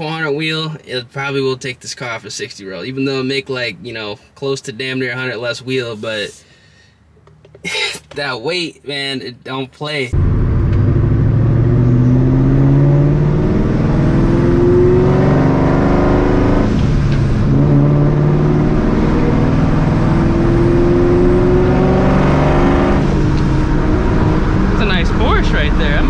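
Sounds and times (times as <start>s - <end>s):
car engine revving under load: 10.2s - 26.0s.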